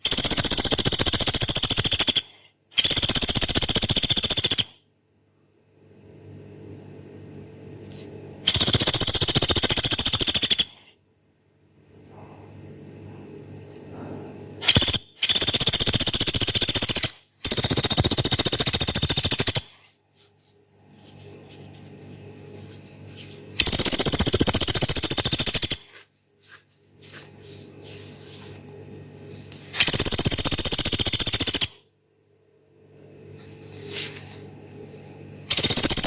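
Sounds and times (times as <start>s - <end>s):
woodpecker rattling trills: 0.0s - 4.8s, 8.5s - 10.8s, 14.6s - 19.8s, 23.6s - 25.9s, 29.8s - 31.8s, 35.5s - 36.0s.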